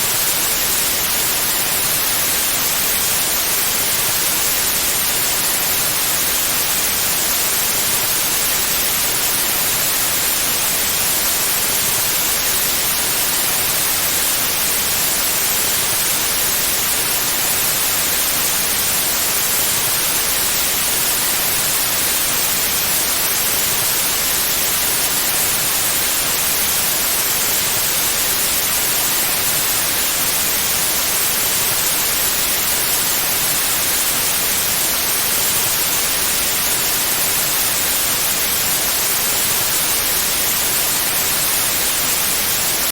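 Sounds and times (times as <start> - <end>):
white noise hiss: 0.0 - 42.9.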